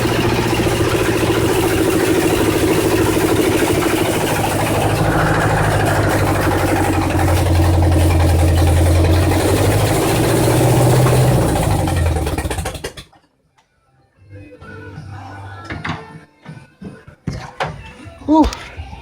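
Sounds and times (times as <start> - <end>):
vee-eight engine sputtering: 0.0 - 13.2.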